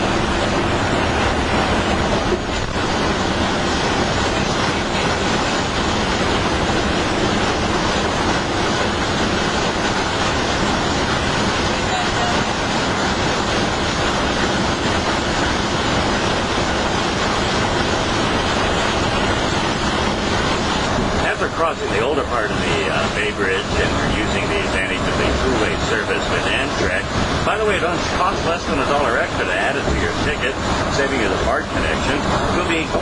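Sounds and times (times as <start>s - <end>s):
bus road and engine noise: 0.0s - 33.0s.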